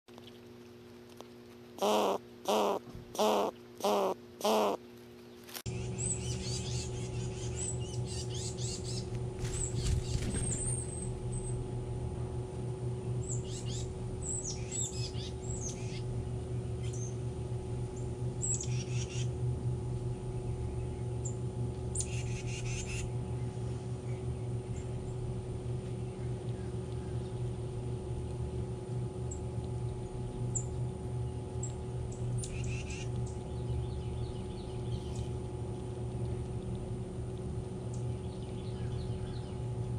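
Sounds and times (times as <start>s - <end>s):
steady low hum: 0.1s - 39.9s
birds chirping: 1.8s - 11.6s, 13.0s - 17.2s, 29.3s - 35.4s, 37.9s - 39.9s.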